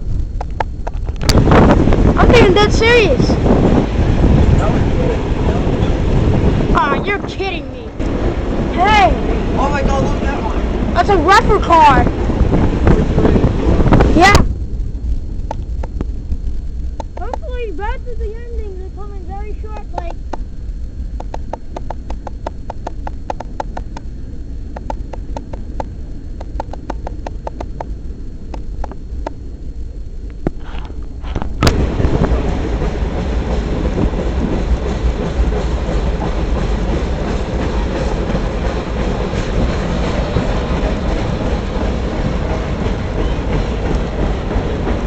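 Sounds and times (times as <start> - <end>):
freight cars rolling on rails: 0.0 - 45.0
wheels clicking over rail joints: 14.8 - 17.8, 21.1 - 29.4, 30.3 - 45.0.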